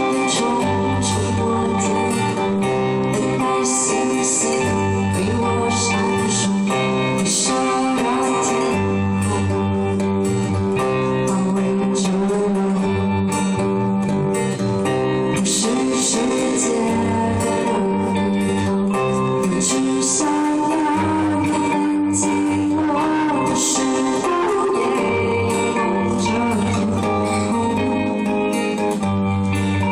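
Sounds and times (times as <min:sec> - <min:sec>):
acoustic guitar: 0:00.0 - 0:29.9
bass line: 0:00.0 - 0:29.9
person singing: 0:00.0 - 0:29.9.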